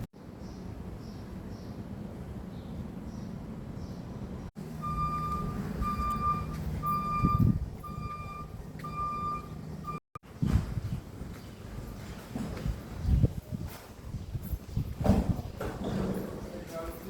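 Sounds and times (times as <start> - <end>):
reversing alarm beeping: 4.6 - 10.1.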